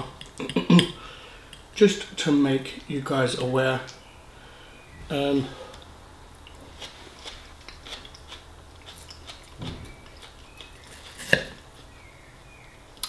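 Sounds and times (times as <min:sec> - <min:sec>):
man chewing: 0:05.5 - 0:12.2
wet mouth clicks: 0:05.7 - 0:11.5.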